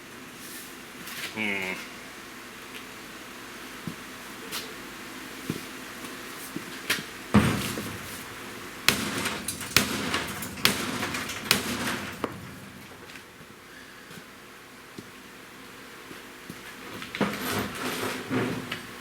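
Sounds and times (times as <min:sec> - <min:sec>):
heavy hammer blows: 0:07.4 - 0:13.5.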